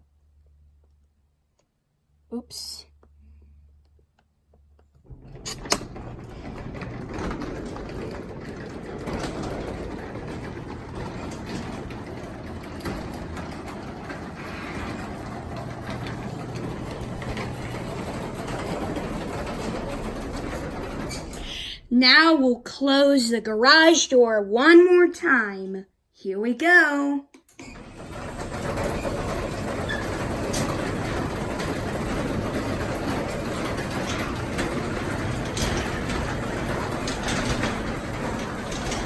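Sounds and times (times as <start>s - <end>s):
garage door opener click: 5.0s - 21.7s, 27.4s - 39.0s
garage door opener humming: 5.0s - 21.9s, 27.4s - 39.0s.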